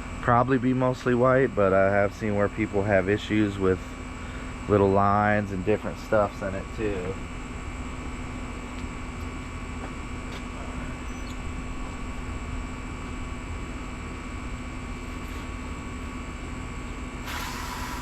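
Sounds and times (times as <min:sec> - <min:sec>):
air conditioner whooshing: 0:10.5 - 0:18.0
brief hiss: 0:17.2 - 0:18.0.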